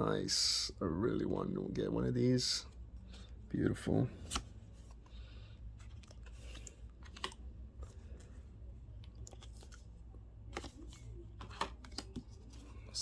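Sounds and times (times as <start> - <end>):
cards being flicked and rustled: 4.1 - 13.0.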